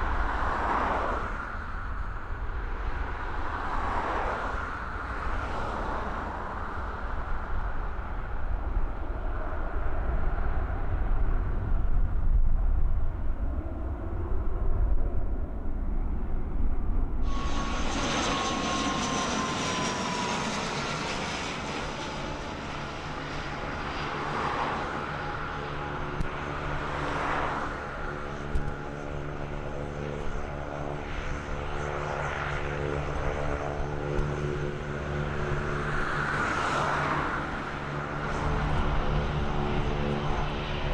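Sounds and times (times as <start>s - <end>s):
aircraft engines rumbling: 0.0s - 40.9s
engine whine: 13.7s - 40.9s.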